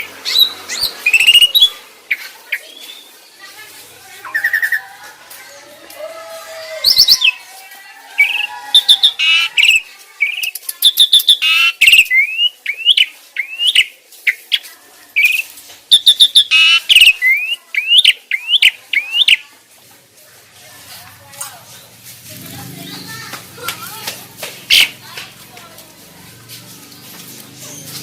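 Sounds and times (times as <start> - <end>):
starling whistles and trills: 0.0 - 1.8, 8.2 - 13.9.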